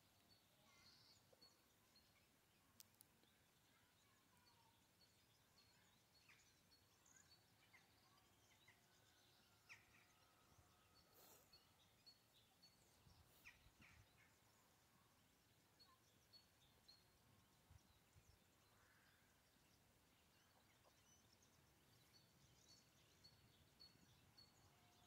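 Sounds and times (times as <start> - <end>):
background hiss: 10.2 - 25.0.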